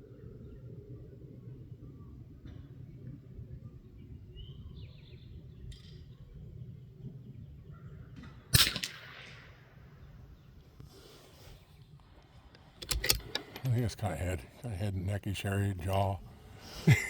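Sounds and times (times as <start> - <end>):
rifle shot crack: 8.5 - 10.0.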